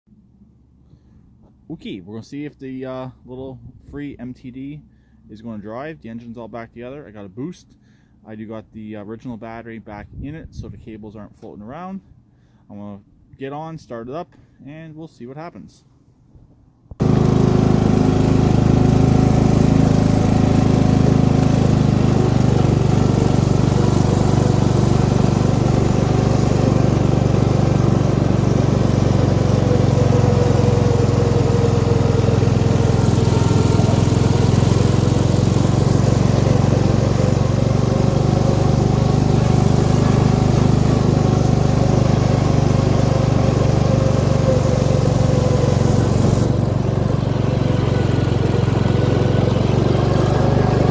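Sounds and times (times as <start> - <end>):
lawn tractor engine running: 17.0 - 50.9.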